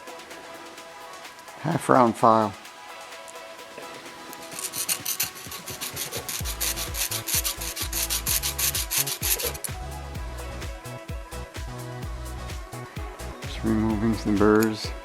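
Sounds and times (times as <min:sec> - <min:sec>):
file scraping brass: 0:04.7 - 0:09.6.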